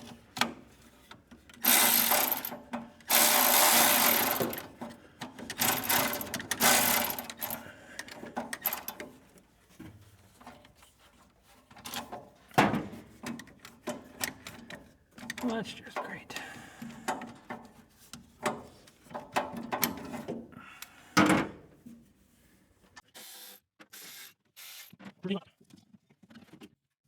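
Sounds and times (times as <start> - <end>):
handheld power tool running: 1.6 - 4.8, 5.5 - 7.7, 8.6 - 9.0.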